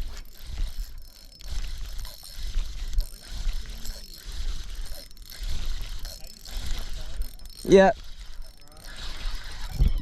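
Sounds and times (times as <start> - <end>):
fishing reel ratcheting clicks: 0.0 - 10.0.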